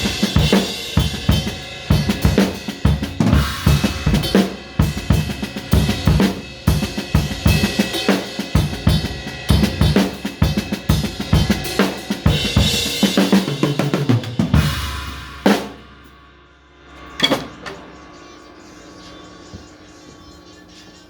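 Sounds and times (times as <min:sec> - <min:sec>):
drum kit playing a beat: 0:00.0 - 0:16.3
cymbal crash ringing out: 0:00.0 - 0:18.8.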